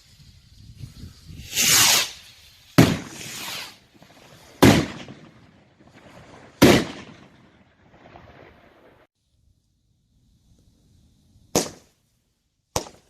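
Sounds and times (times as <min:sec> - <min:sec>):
firework hissing launch: 0:00.0 - 0:05.3
firework bangs: 0:01.4 - 0:09.1, 0:11.5 - 0:11.9.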